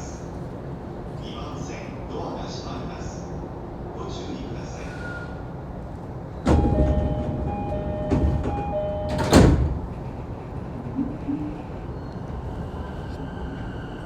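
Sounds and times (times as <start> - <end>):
train doors shutting thud: 6.4 - 10.3
train door two-tone chime: 6.5 - 9.8.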